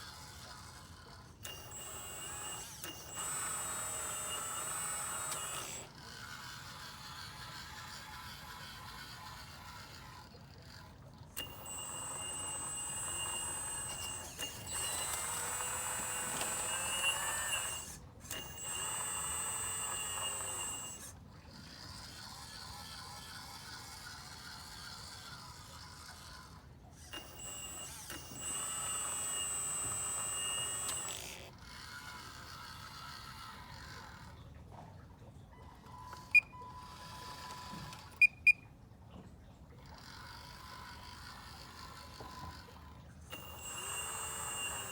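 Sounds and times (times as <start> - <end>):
hydraulic pump whining: 0.0 - 34.9, 35.6 - 38.6, 39.8 - 44.9
short sharp beeps: 38.2 - 38.7.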